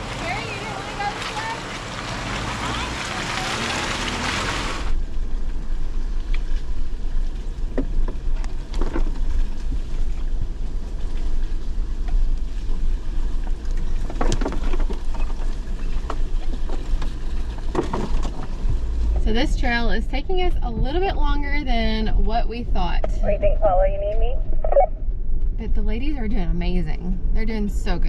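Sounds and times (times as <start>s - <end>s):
off-road vehicle low rumble: 0.0s - 28.0s
knocks and rattles: 14.0s - 18.8s.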